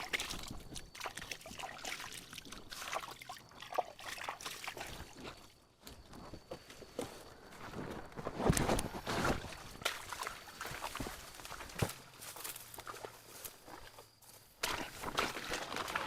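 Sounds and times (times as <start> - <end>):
water trickling and splashing: 0.0 - 5.6, 9.4 - 11.8.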